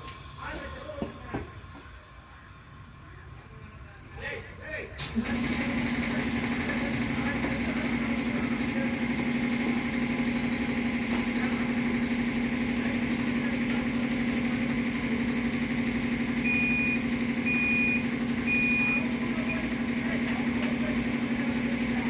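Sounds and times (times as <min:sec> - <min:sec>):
engine-like hum: 0:00.0 - 0:22.0
short electronic beeps: 0:16.4 - 0:19.6.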